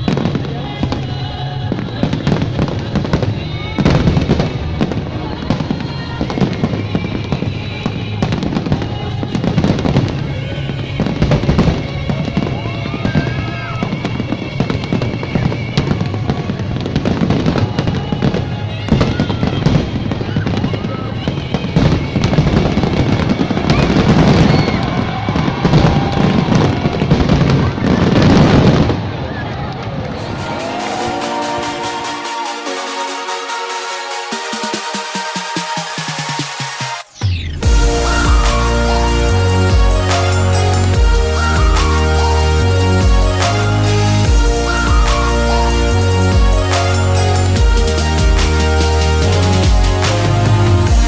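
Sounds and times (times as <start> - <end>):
fireworks bursting and banging: 30.1 - 51.0
music soundtrack: 30.1 - 51.0.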